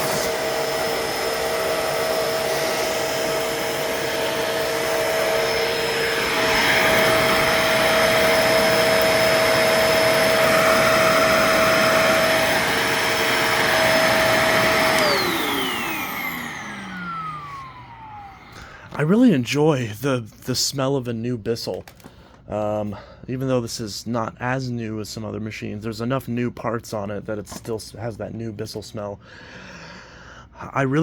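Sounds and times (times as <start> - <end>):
vacuum cleaner motor whine: 0.0 - 19.0.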